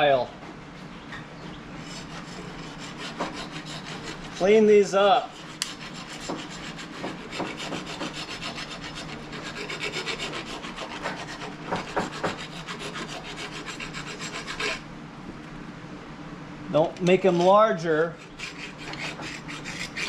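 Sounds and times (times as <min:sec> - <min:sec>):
file scraping steel: 0:01.8 - 0:14.9, 0:17.2 - 0:20.0.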